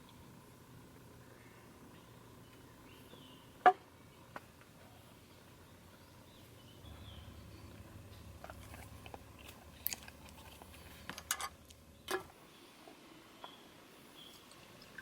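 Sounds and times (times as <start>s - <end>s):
low steady hum: 0.0s - 15.0s
crunchy food chewing: 8.4s - 11.1s.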